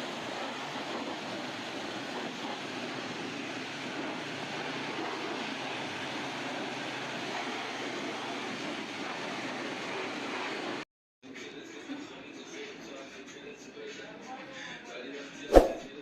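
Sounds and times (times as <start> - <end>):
car wash equipment rushing: 0.0 - 10.8.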